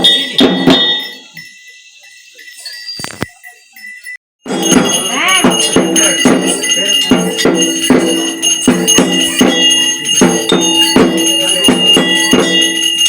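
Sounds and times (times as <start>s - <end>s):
drum strokes: 0.0s - 1.5s, 4.5s - 13.0s
bells ringing: 0.0s - 13.0s.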